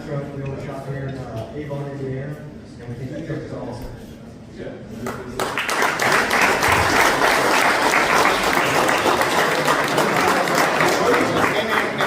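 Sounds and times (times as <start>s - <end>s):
crowd applauding: 5.1s - 12.0s.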